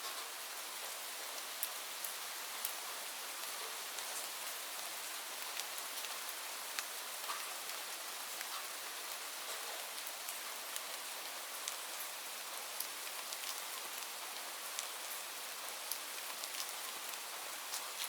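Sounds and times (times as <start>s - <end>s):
steady rain hissing: 0.0s - 18.0s
raindrops ticking on hard surface: 15.9s - 17.1s.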